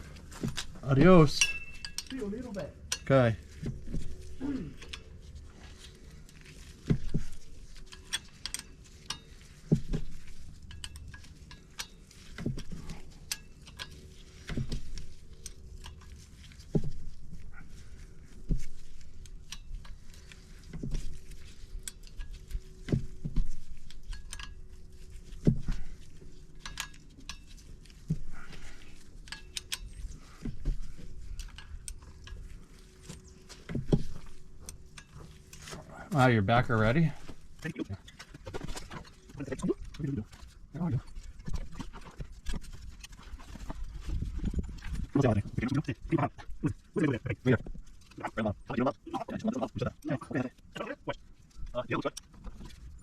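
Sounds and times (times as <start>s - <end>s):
metal tools clinking: 0.1s - 16.3s.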